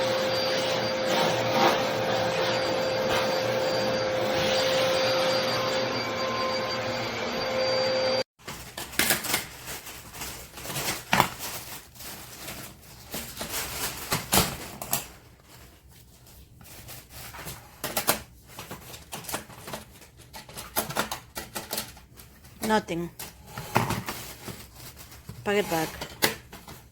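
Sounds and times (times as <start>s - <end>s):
vacuum cleaner whining: 0.0s - 8.3s.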